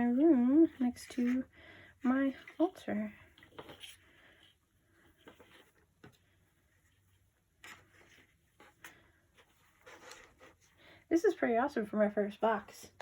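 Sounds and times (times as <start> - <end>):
faint clicks and rustles: 0.6 - 10.8.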